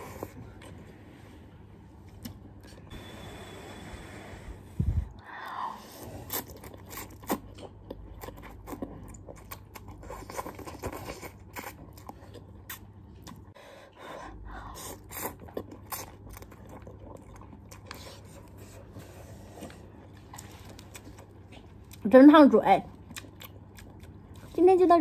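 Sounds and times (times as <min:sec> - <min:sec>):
chewing: 0:06.2 - 0:13.6, 0:14.8 - 0:22.0, 0:22.9 - 0:24.6.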